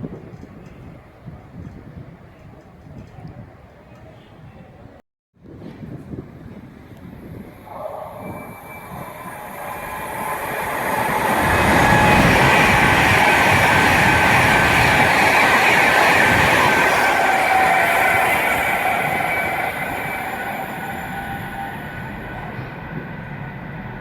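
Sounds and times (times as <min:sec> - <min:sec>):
train running past: 0:06.6 - 0:24.0
high-pitched wheel ring on rails: 0:08.0 - 0:14.9.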